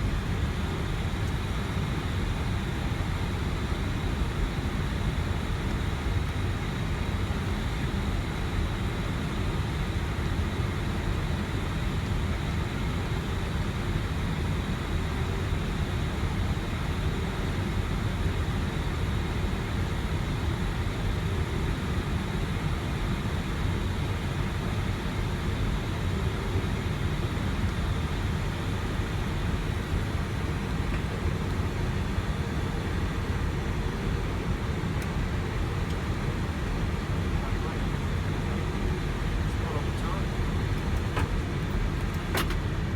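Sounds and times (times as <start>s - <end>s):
low cabin rumble: 29.2s - 42.9s.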